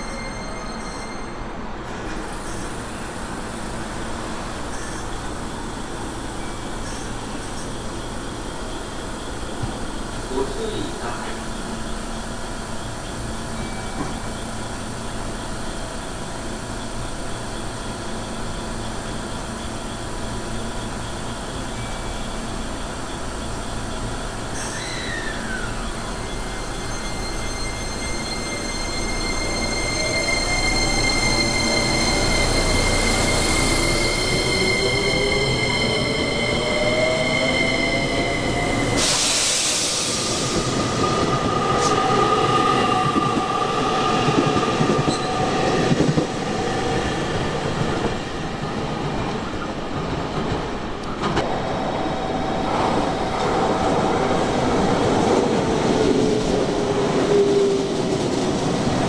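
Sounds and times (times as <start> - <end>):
high steady squealing tone: 20.7 - 49.8.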